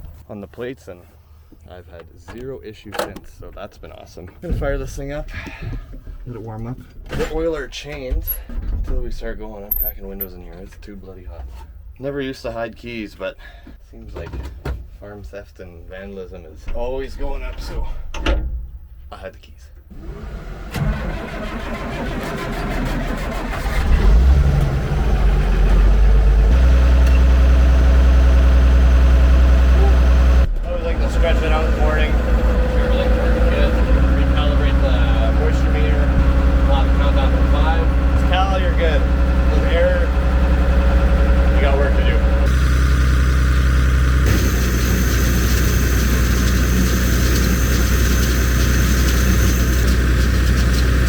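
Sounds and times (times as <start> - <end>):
baler machinery running: 19.9 - 51.0
tractor engine idling: 19.9 - 51.0
tractor starter cranking: 20.0 - 28.2, 31.0 - 51.0.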